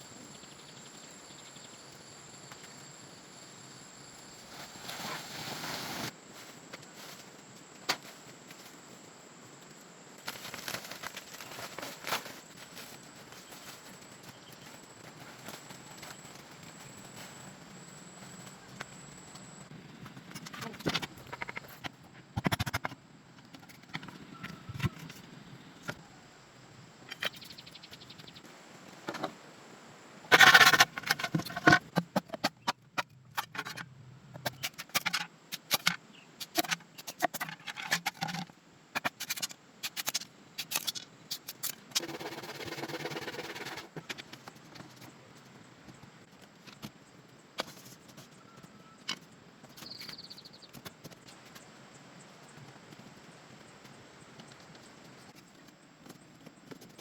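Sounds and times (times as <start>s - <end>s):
knocks clicks and scrapes: 30.3s - 44.9s.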